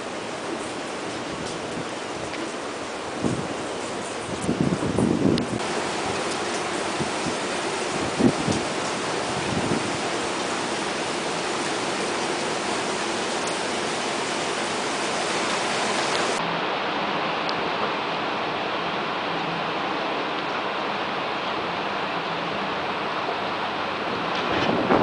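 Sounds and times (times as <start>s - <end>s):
wind buffeting microphone: 0.0s - 16.4s, 23.3s - 25.0s
wind and rain rushing: 0.0s - 25.0s.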